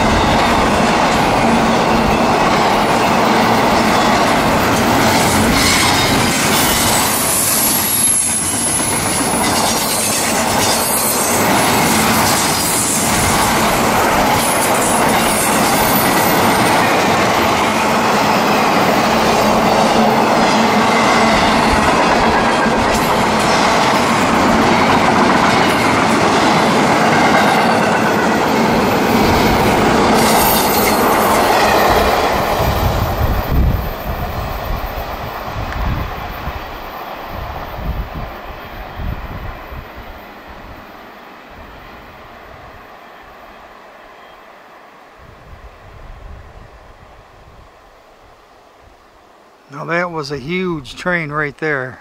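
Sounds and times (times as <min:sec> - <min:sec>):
train wheels clattering on rails: 0:00.0 - 0:38.4
wheel squeal: 0:05.5 - 0:11.5.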